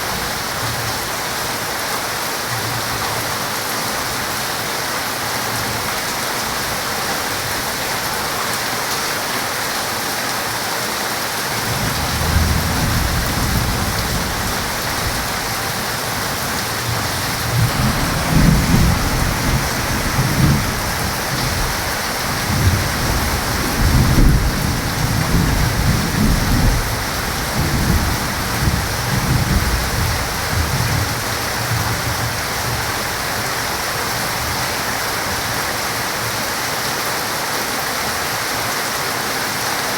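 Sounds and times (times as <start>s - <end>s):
heavy rain: 0.0s - 39.9s
thunder rumbling: 11.6s - 33.4s.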